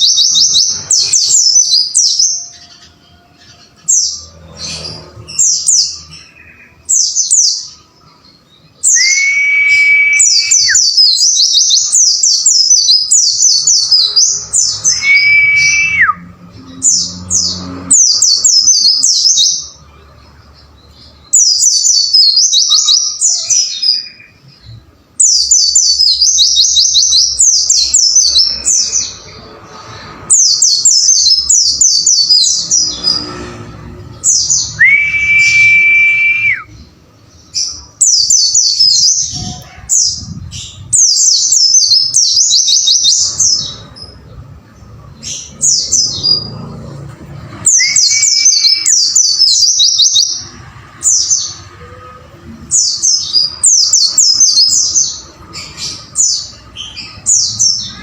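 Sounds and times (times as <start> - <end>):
long steady whistle: 34.8 - 36.6.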